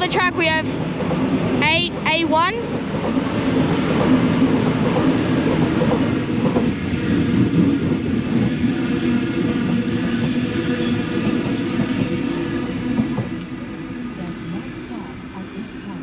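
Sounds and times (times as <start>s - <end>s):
electric train rumbling: 0.0s - 16.0s.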